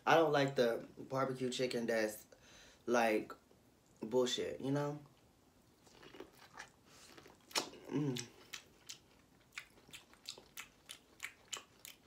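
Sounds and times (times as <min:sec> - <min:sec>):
wet smacking chewing: 0:05.8 - 0:12.0.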